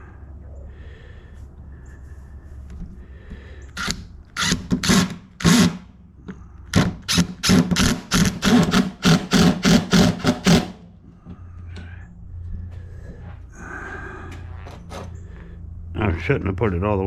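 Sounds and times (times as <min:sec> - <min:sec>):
cordless drill driving screw: 0:03.8 - 0:05.8, 0:07.1 - 0:10.8.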